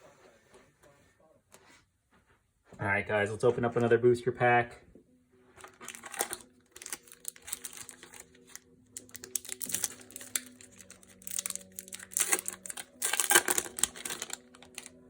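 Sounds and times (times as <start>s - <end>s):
cards clicking and rustling: 5.6s - 15.0s
foil wrapper crinkling and tearing: 5.6s - 15.0s.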